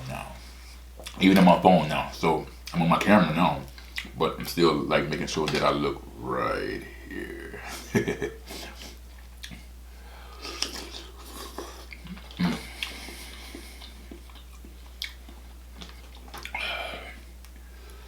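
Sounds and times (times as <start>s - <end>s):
wet chewing and smacking: 1.0s - 1.2s, 3.7s - 4.2s, 9.1s - 9.7s, 10.4s - 16.7s.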